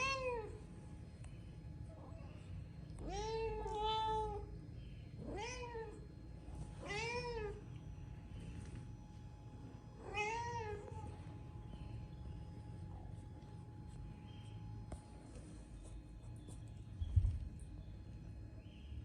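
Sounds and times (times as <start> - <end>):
cat meowing: 5.2 - 6.0, 10.0 - 11.1.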